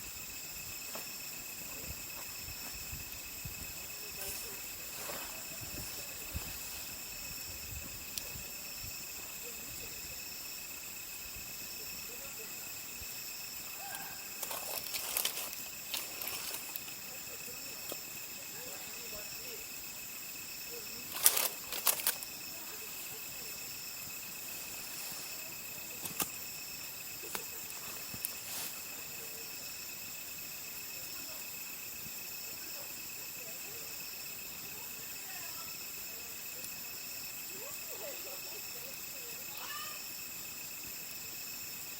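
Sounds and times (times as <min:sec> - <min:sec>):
insects trilling: 0:00.0 - 0:41.9.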